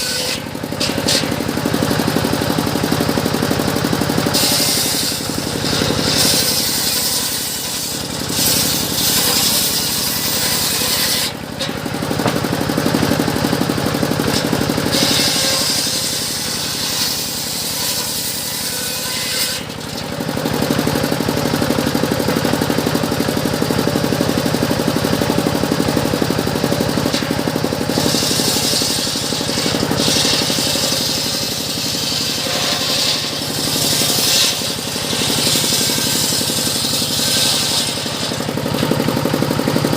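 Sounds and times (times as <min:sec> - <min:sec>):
sawmill machine drone: 0:00.0 - 0:39.9
saw blade cutting wood hiss: 0:04.3 - 0:11.4, 0:27.9 - 0:38.5.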